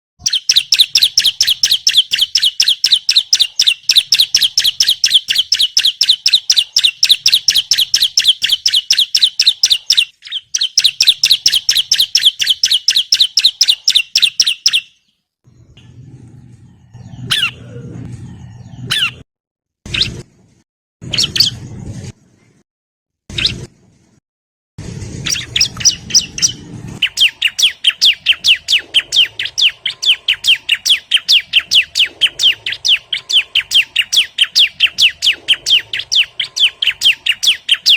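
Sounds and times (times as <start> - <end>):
bird sharp repeated chirps: 0.2 - 15.2, 19.9 - 20.2, 21.0 - 21.6, 25.2 - 37.9
low hum: 15.5 - 18.9, 24.8 - 27.5.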